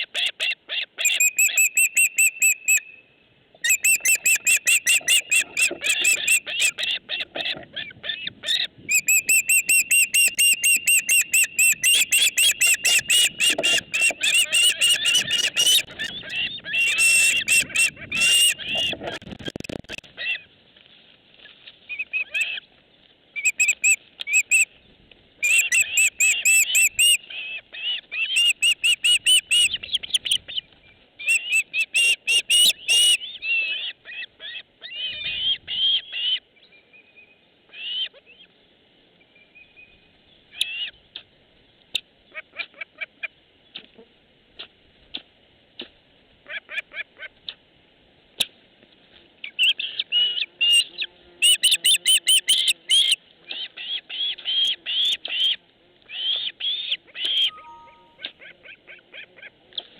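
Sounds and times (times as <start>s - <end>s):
bird chirping rapidly: 1.0s - 3.0s, 3.6s - 6.7s, 8.9s - 16.2s, 23.4s - 24.6s, 51.5s - 53.2s, 57.4s - 58.2s.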